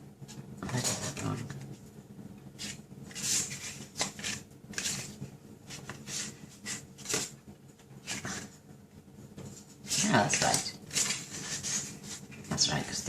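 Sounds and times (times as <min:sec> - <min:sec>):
paper rustling: 0:02.6 - 0:08.6, 0:09.4 - 0:13.0.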